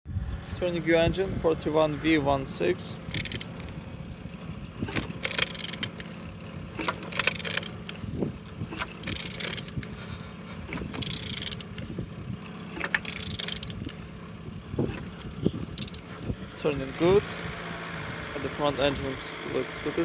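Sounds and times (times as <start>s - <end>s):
engine turned over by hand: 1.1s - 20.0s.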